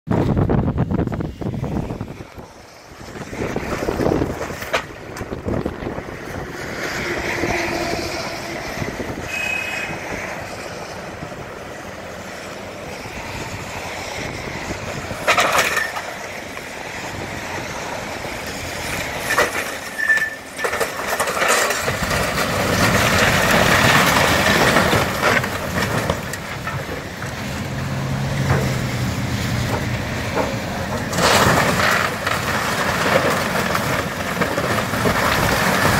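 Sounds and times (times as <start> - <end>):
heavy machinery engine: 0.1 - 35.9
debris crunching: 1.9 - 7.3, 17.8 - 35.9.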